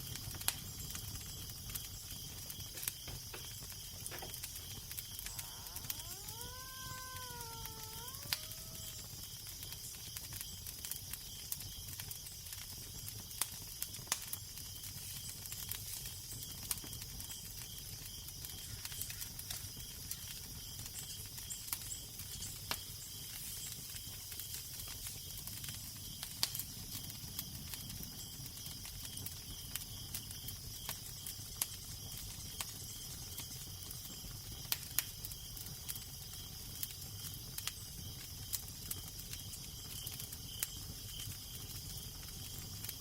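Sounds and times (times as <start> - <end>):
fire crackling and popping: 0.0 - 43.0
wavering drawn-out call: 5.3 - 9.0.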